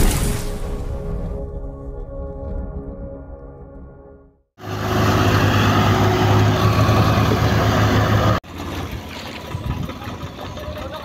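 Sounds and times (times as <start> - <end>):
rough quieter engine: 4.6 - 11.0
tractor diesel engine running: 4.6 - 11.0.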